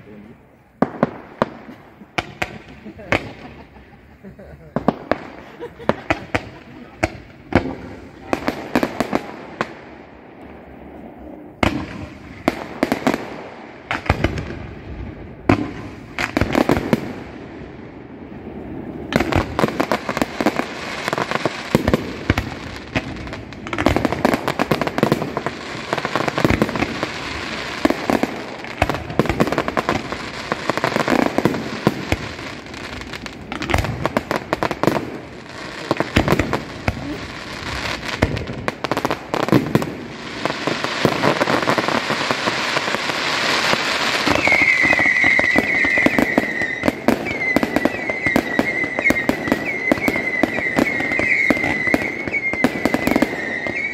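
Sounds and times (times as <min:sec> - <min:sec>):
fireworks bangs and crackling: 0:00.0 - 0:53.9
high wavering whistle: 0:44.4 - 0:52.7.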